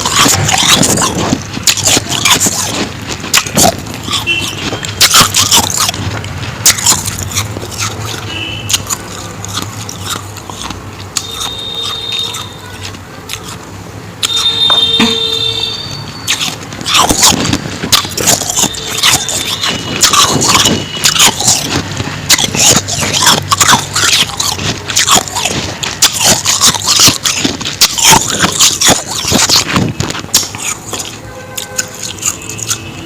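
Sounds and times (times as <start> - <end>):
chewing crunchy ice: 0.0 - 33.0.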